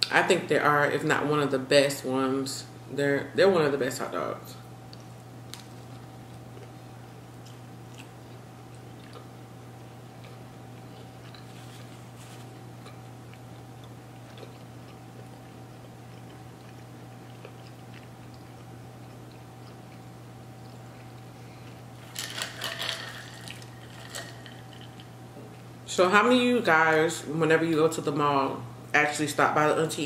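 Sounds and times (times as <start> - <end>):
steady low hum: 0.0 - 30.0
person chewing: 4.9 - 22.2.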